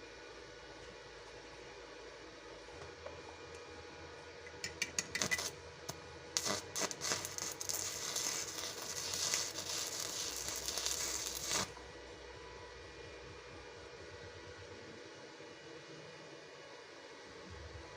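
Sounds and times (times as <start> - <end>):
electric welding arc crackling: 5.1 - 5.6, 6.4 - 11.8.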